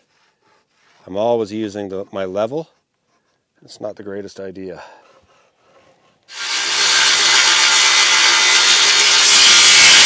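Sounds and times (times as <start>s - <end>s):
circular saw cutting wood: 6.2s - 10.0s.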